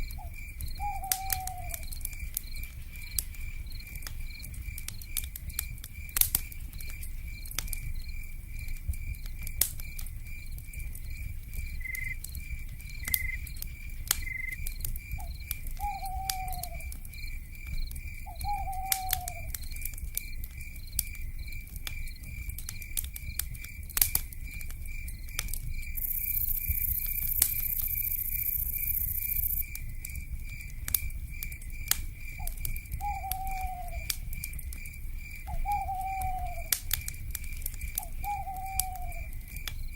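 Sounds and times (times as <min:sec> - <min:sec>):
insect trill: 0:00.0 - 0:39.9
wood fire crackling: 0:00.0 - 0:39.9
owl hooting: 0:00.8 - 0:01.8, 0:15.8 - 0:16.9, 0:18.3 - 0:19.5, 0:33.0 - 0:34.1, 0:35.5 - 0:36.7, 0:38.0 - 0:39.3.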